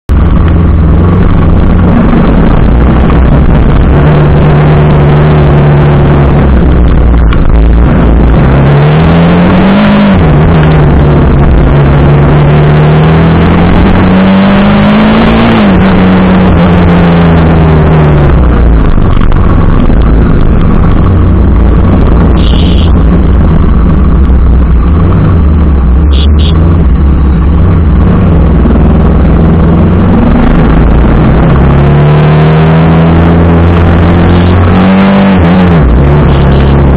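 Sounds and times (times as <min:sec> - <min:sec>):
wind noise on microphone: 0:00.1 - 0:12.8
motorcycle engine accelerating: 0:00.1 - 0:36.9
short high beeps: 0:22.4 - 0:23.0, 0:26.0 - 0:26.6.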